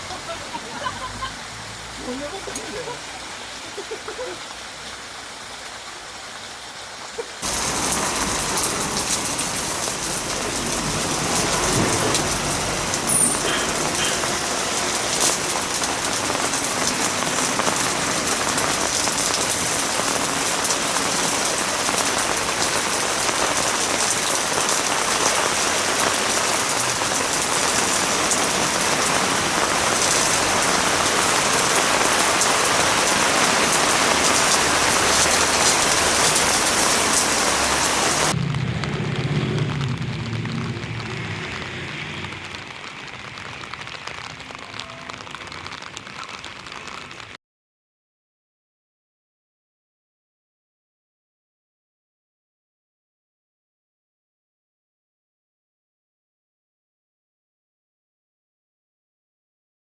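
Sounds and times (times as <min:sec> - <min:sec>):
sharp water drips: 0:00.0 - 0:17.0, 0:24.0 - 0:47.3
heavy rain pouring: 0:00.0 - 0:47.4.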